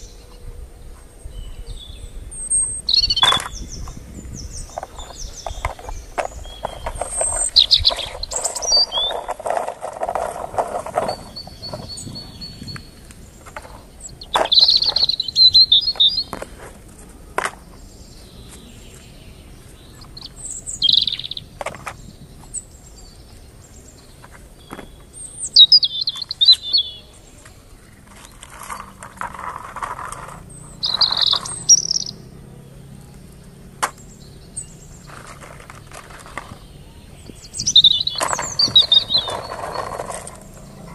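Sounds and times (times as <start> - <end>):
bird chirping: 0.0 - 40.9
clicks and rustling: 4.6 - 12.0, 35.0 - 36.6, 37.7 - 40.9.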